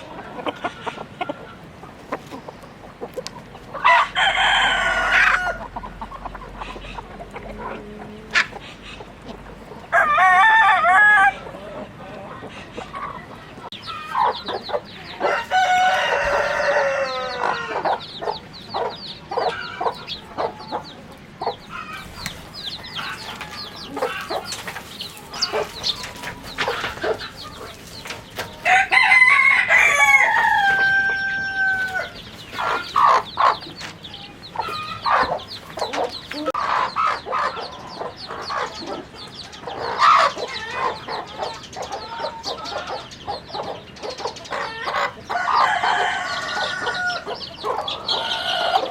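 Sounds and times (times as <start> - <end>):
chickens clucking: 0.0 - 48.9
rooster crowing: 3.8 - 5.7, 9.9 - 11.4, 15.2 - 17.9, 28.6 - 32.2, 45.3 - 47.3.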